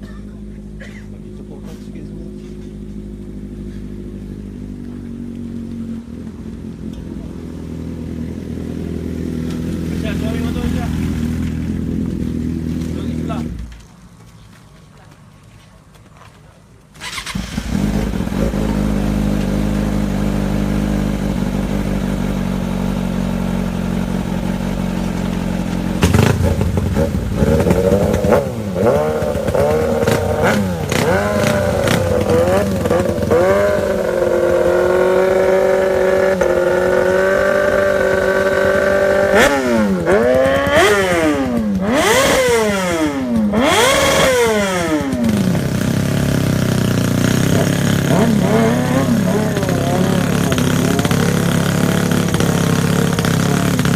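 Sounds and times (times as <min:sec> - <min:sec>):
motorcycle engine idling and revving: 0:00.0 - 0:53.9.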